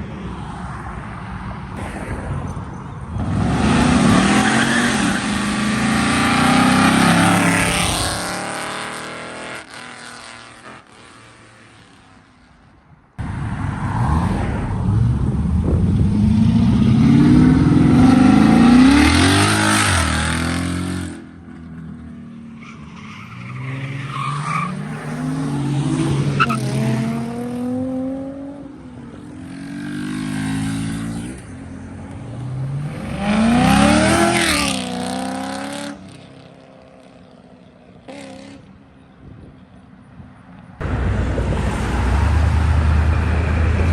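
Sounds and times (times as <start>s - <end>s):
car engine revving hard: 33.0s - 35.9s.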